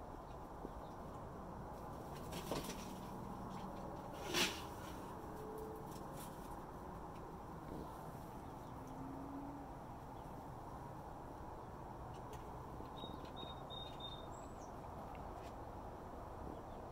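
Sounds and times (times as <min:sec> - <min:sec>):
outdoor background noise: 0:00.0 - 0:16.9
small bird chirping: 0:12.9 - 0:14.8.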